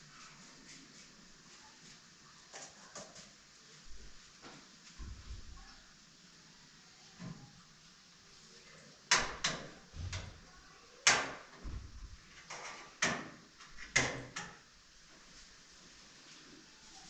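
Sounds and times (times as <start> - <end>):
sharp knocks and clatters: 9.1 - 10.4, 11.1 - 14.6.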